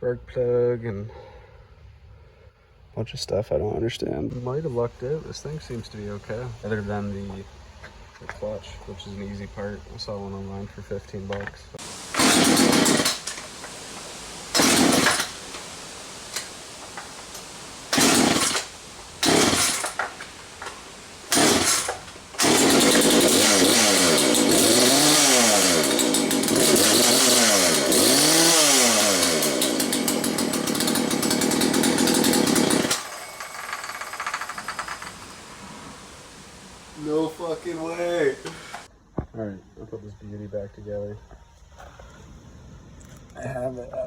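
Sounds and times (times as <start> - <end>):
chainsaw engine starting and revving: 11.8 - 38.9.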